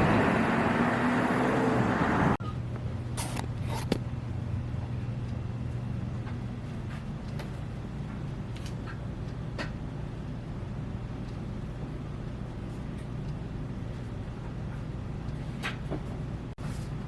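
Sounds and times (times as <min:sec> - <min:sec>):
road traffic noise: 0:00.0 - 0:02.4
steady low hum: 0:02.3 - 0:17.0.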